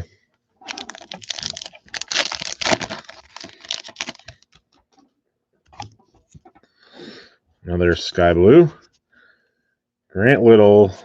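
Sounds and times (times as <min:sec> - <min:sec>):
card pack wrappers crinkling: 0:00.6 - 0:04.8.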